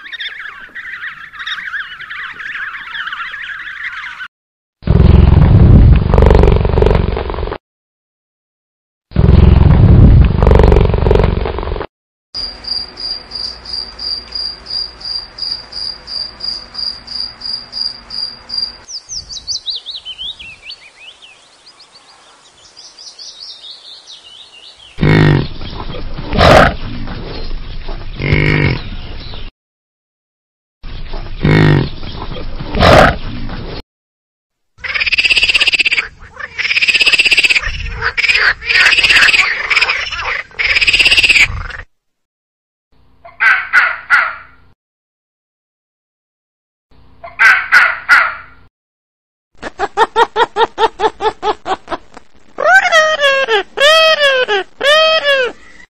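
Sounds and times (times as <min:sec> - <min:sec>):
loud low animal calls: 0:25.0 - 0:26.9, 0:28.2 - 0:28.9, 0:31.4 - 0:32.0, 0:32.7 - 0:33.2
harsh animal calls: 0:25.0 - 0:27.0, 0:28.2 - 0:28.9, 0:31.4 - 0:32.0, 0:32.7 - 0:33.2, 0:34.8 - 0:41.9, 0:52.6 - 0:55.9.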